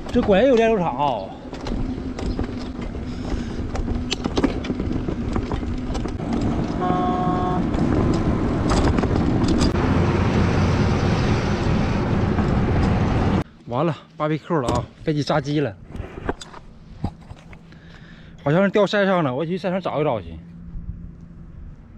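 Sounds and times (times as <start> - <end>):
road traffic: 0.0 - 13.7, 19.4 - 21.9
vehicle horn toot: 6.7 - 7.8.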